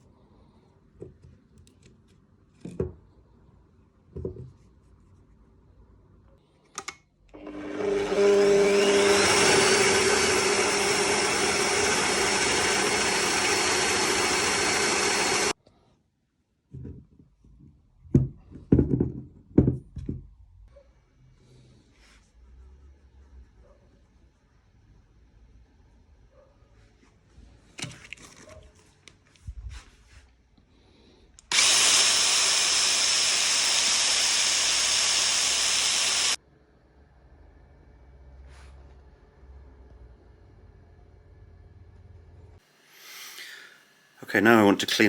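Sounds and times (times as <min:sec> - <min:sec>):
power tool whining: 0:07.4 - 0:15.6, 0:31.5 - 0:36.4.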